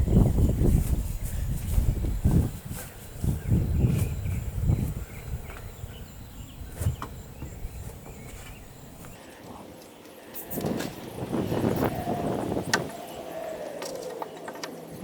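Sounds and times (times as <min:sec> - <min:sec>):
low thumps and scuffs: 0:00.0 - 0:09.2.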